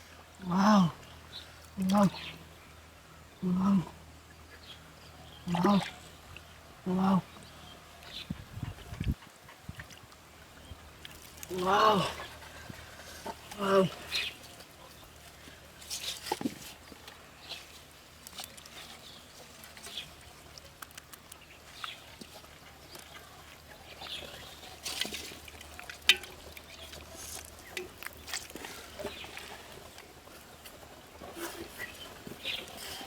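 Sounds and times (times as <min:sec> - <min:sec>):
water splashes: 0:09.0 - 0:33.0
wet handling noises: 0:11.0 - 0:33.0.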